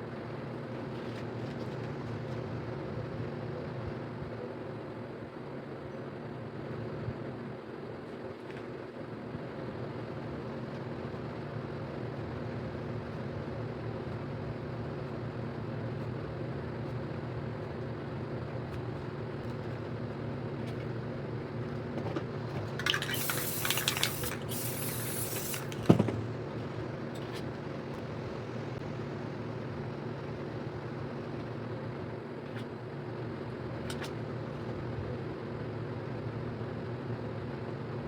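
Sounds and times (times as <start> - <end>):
spray paint can hissing: 22.8 - 26.0.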